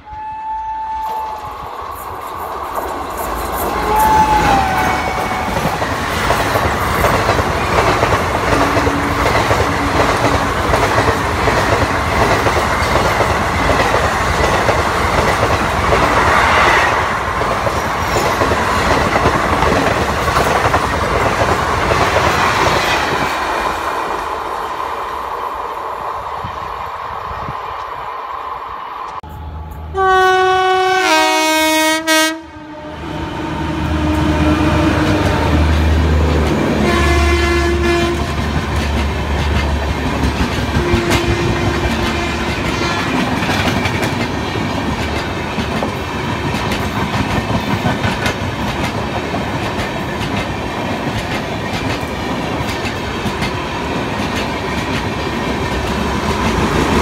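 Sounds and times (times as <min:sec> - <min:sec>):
locomotive air horn: 0:00.0 - 0:01.8, 0:03.6 - 0:05.8, 0:29.3 - 0:35.7, 0:36.8 - 0:38.5, 0:40.8 - 0:43.2
train passing at speed: 0:00.0 - 0:57.0.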